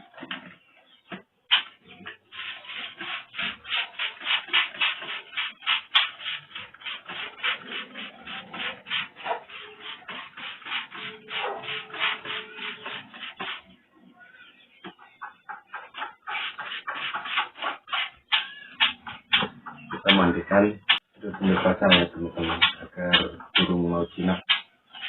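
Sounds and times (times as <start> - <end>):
rhythmic swishing strokes: 2.3 - 13.7.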